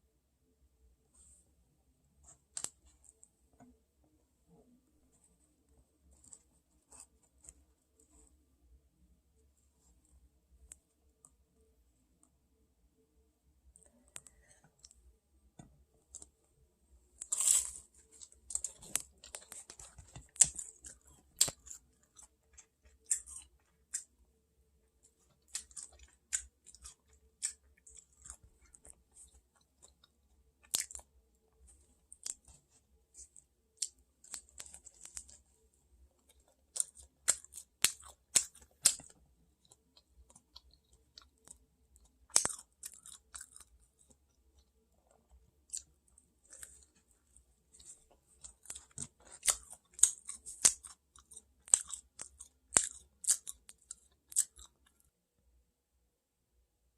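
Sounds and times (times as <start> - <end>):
person chewing and crunching: 17.2 - 24.2, 25.0 - 35.5, 36.1 - 55.1.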